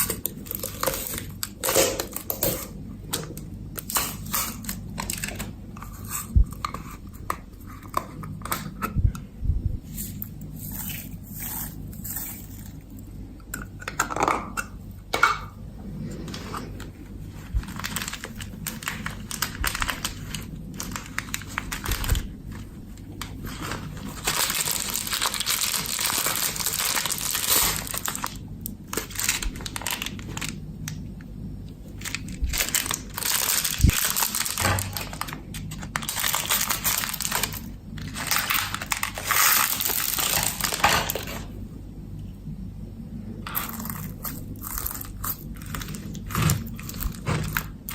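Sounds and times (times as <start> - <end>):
slime crackling and popping: 17.5 - 31.0.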